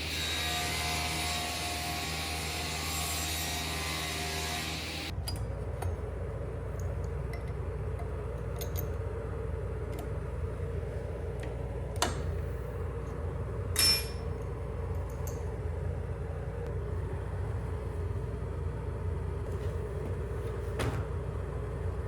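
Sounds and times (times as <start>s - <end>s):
low workshop hum: 0.0s - 22.0s
tools clicking and clinking: 6.7s - 9.0s.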